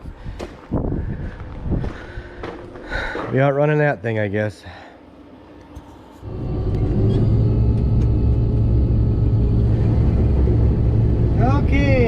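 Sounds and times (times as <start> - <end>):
combine harvester engine droning: 6.2 - 12.0.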